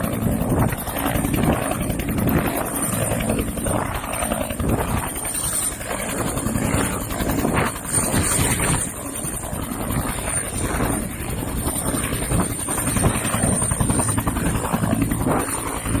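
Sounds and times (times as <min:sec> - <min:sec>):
helicopter rotor beating: 0:00.0 - 0:16.0
high turbine whine: 0:00.0 - 0:16.0.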